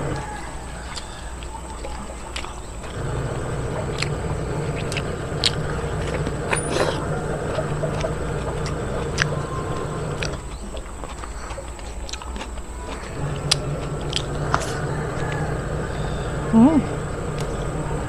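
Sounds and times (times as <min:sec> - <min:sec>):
chewing: 0:00.0 - 0:18.0
wet mouth clicks and smacks: 0:00.9 - 0:03.0, 0:10.2 - 0:15.3
low hum: 0:01.7 - 0:11.0, 0:12.7 - 0:18.0.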